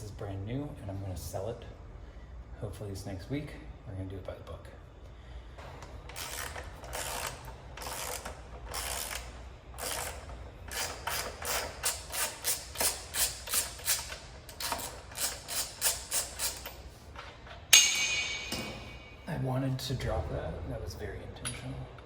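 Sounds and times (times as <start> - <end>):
ratchet wrench clicking: 6.1 - 16.8.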